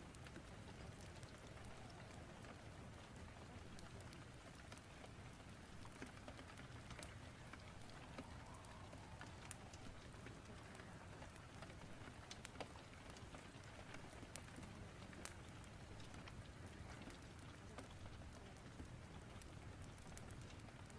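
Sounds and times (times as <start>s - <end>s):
rain hissing: 7.1s - 12.2s.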